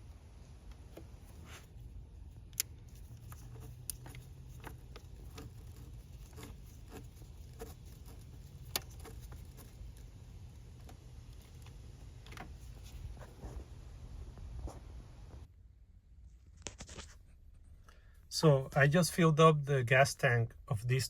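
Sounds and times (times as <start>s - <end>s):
low steady hum: 0.0s - 21.0s
light handling noises: 0.6s - 15.5s.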